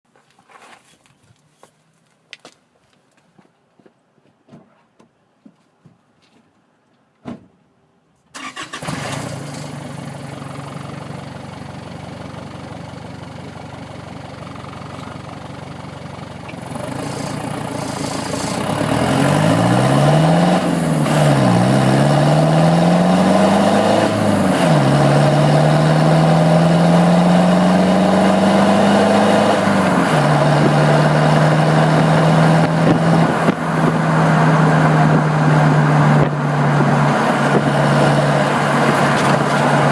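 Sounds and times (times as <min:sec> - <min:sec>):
diesel engine starting and revving: 0:08.4 - 0:39.9.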